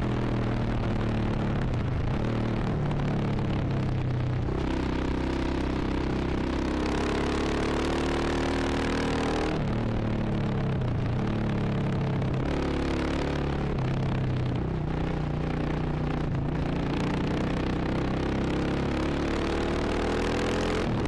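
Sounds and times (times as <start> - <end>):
motorcycle engine revving: 16.6 - 21.0.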